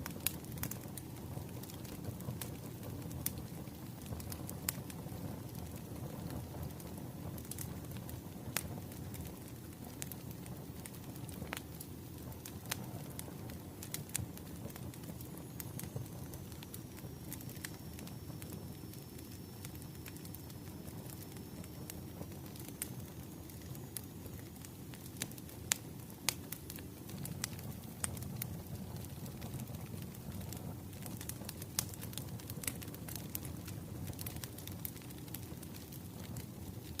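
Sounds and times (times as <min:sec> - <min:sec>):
bonfire crackling: 0:00.0 - 0:37.0.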